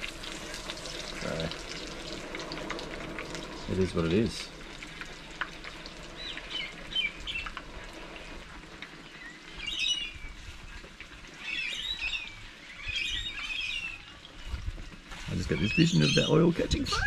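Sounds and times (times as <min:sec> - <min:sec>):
wild birds chirping: 0:00.8 - 0:17.0.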